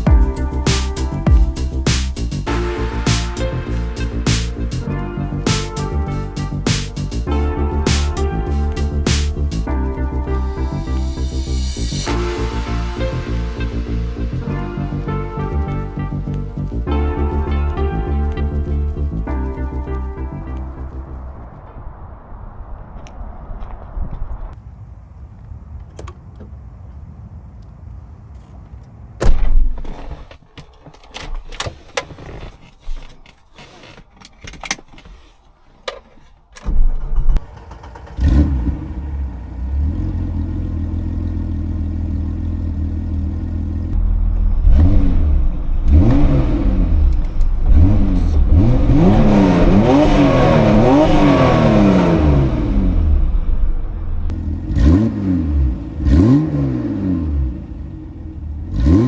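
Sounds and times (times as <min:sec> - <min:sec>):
engine revving: 0:00.0 - 0:21.0, 0:37.4 - 0:59.0
car engine starting and idling: 0:00.0 - 0:23.8, 0:36.6 - 0:59.0.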